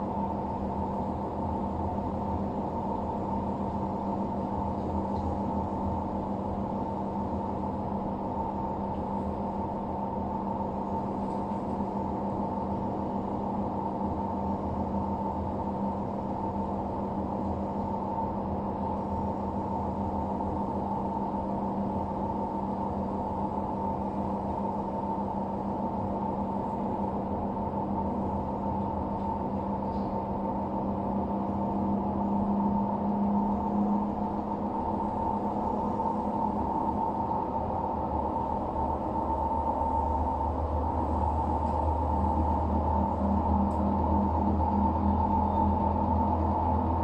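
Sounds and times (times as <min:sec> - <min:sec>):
washing machine drum droning hum: 0:00.0 - 0:47.0
high whine: 0:31.5 - 0:47.0.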